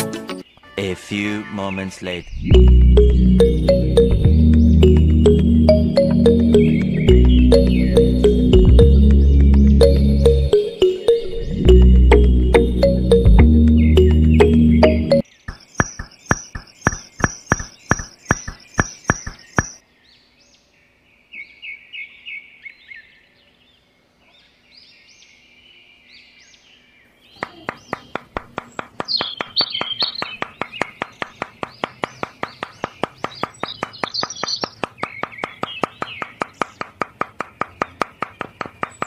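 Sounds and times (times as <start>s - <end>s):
bird chirps: 0.4s - 23.4s, 24.4s - 36.9s, 37.5s - 39.0s
fast regular clicking: 15.5s - 19.8s, 27.9s - 39.0s.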